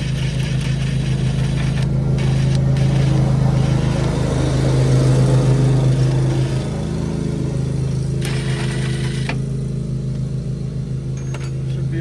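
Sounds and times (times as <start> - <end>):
lawn mower engine running: 0.0 - 12.0
impact wrench hammering: 11.1 - 11.9.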